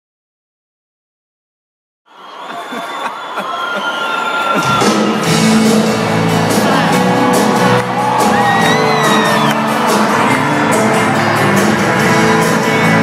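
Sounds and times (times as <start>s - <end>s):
audience screaming and whooping: 2.1s - 13.0s
live band music: 4.6s - 13.0s.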